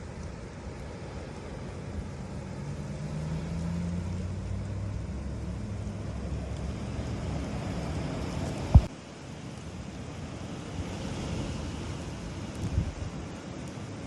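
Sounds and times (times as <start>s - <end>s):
vehicle engine rumble: 0.0s - 9.0s.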